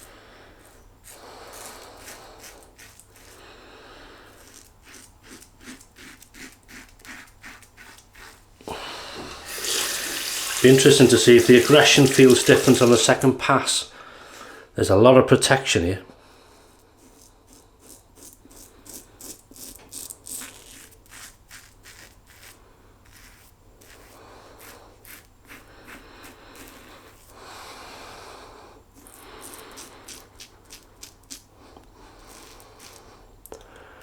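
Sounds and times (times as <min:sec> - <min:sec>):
razor scraping stubble: 0:00.0 - 0:03.5, 0:04.2 - 0:08.7, 0:09.4 - 0:13.1, 0:16.8 - 0:27.4, 0:28.8 - 0:33.5.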